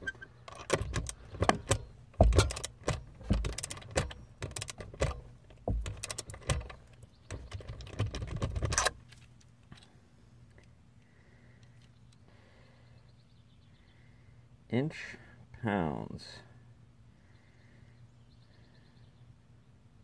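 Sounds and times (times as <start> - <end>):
metallic wrench clicks and knocks: 0.0 - 8.9.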